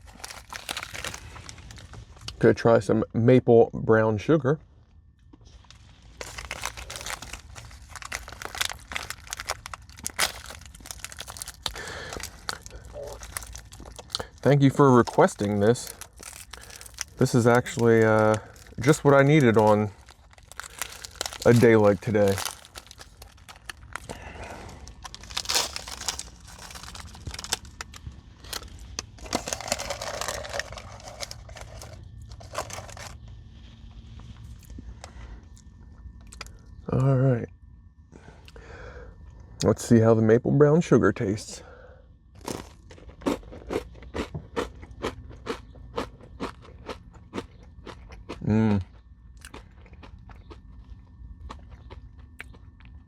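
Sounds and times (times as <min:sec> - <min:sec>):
wrapper crinkling and tearing: 0:00.0 - 0:02.4, 0:05.6 - 0:33.2, 0:42.4 - 0:43.1.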